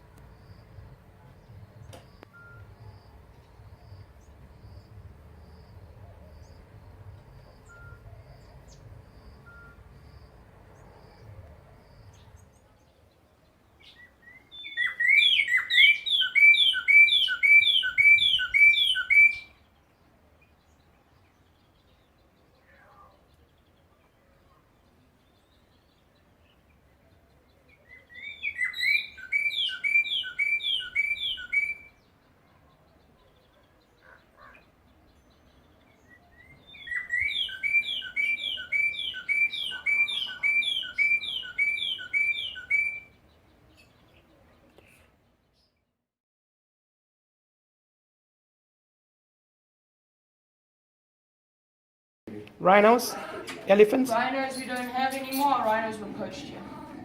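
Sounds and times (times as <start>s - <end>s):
bird whistling song: 2.0s - 2.8s, 7.6s - 8.5s, 9.4s - 9.8s, 13.8s - 19.6s, 27.8s - 32.1s, 35.4s - 44.2s.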